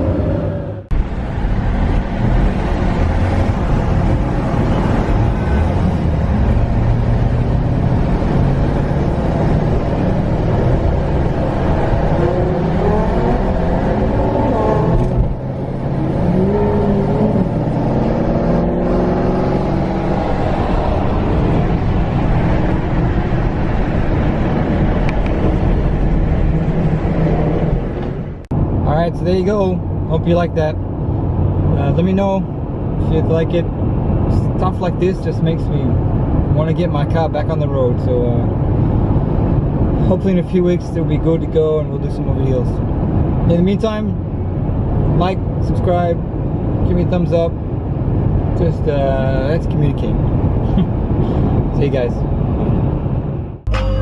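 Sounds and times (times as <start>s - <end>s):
sports car engines revving: 0.0s - 28.4s.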